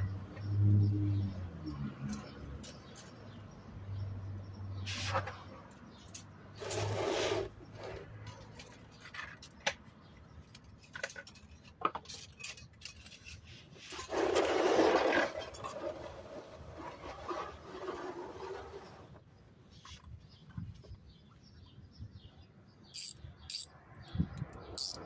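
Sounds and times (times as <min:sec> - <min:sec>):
rustling scrape: 0:04.8 - 0:05.5, 0:06.6 - 0:08.7, 0:13.0 - 0:19.2
hand tools clinking: 0:10.4 - 0:14.4, 0:23.0 - 0:23.7.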